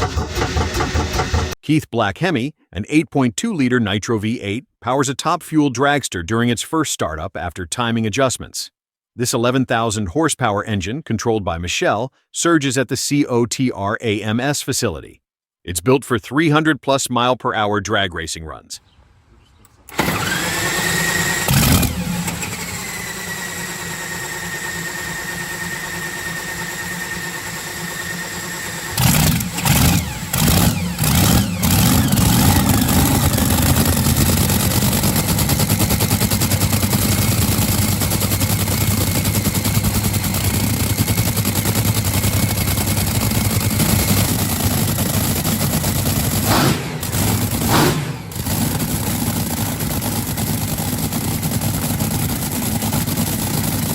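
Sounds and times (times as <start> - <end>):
engine firing with loud cracks: 0.0 - 1.6, 19.9 - 53.9
engine running loudly and roughly: 0.0 - 1.6, 19.9 - 53.9
starter motor whine: 0.0 - 1.6, 19.8 - 53.9.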